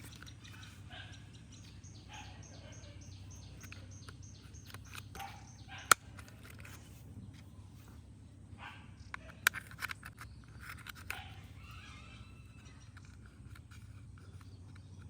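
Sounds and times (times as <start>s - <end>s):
small bird chirping: 0.0s - 15.0s.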